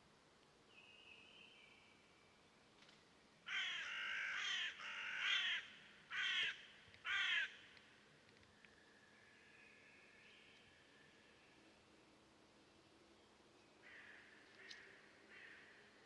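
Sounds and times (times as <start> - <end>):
bird harsh raspy calls: 3.5 - 7.6.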